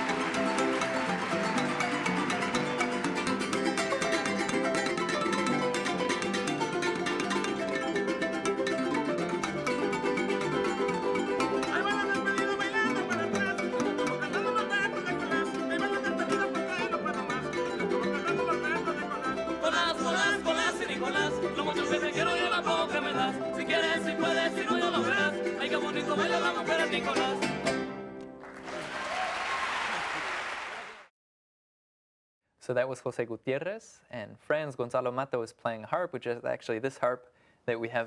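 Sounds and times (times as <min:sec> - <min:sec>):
person singing: 0:00.0 - 0:27.9
harp and guitars playing folk music: 0:00.0 - 0:28.4.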